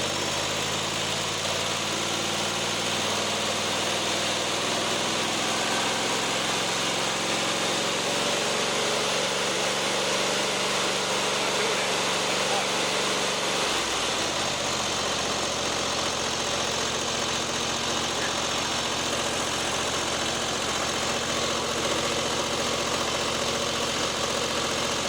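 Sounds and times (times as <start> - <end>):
lawn mower engine running: 0.0 - 25.0.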